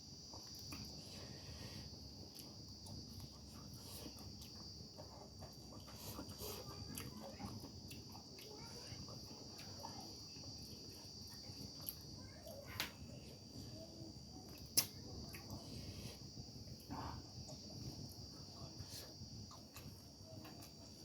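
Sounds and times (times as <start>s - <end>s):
sharp snap: 14.8s - 15.0s.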